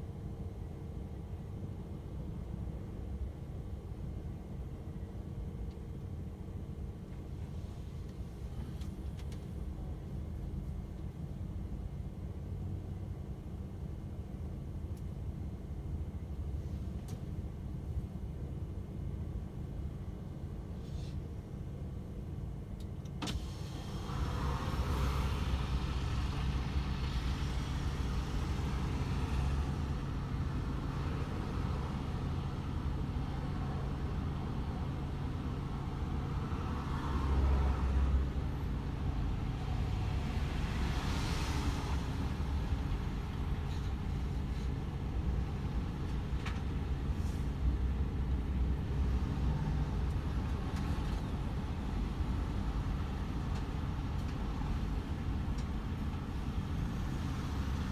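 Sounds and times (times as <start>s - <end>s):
truck diesel engine droning: 23.4s - 36.5s
tyre and road noise: 23.7s - 57.9s.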